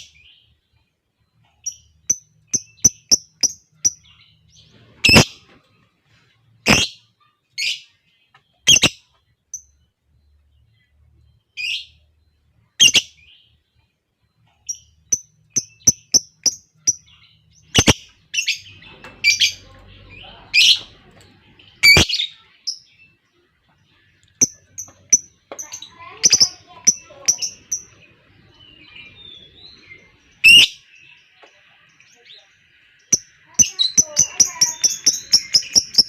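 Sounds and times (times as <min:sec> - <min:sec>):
lovebirds chirping harshly: 0:06.6 - 0:07.9, 0:15.1 - 0:21.0, 0:21.8 - 0:22.4.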